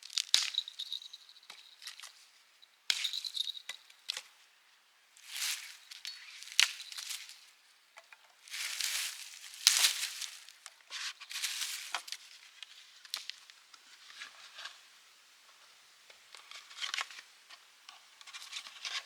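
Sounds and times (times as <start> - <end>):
small bell jingling: 0.4 - 2.2, 2.9 - 3.9, 5.2 - 7.4, 8.5 - 10.5, 11.3 - 11.9
rustling and crunching handling: 5.2 - 7.6, 8.2 - 13.4.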